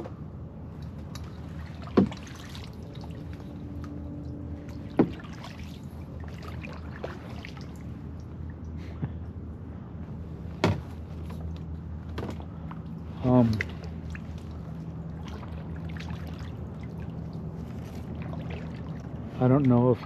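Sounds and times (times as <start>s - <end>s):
paddle swishing water: 0.9s - 8.4s, 13.0s - 19.8s
sharp knocks: 5.0s - 5.3s, 10.6s - 10.9s.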